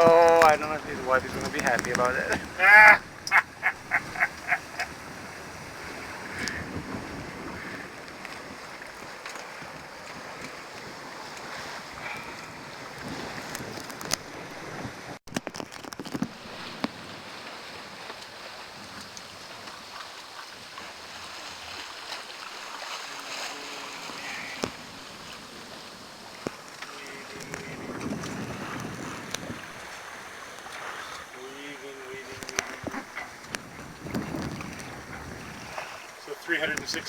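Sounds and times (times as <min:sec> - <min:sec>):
water rushing: 0:00.0 - 0:13.1, 0:16.3 - 0:37.0
wind buffeting microphone: 0:00.0 - 0:15.2, 0:24.0 - 0:31.2, 0:32.3 - 0:36.0.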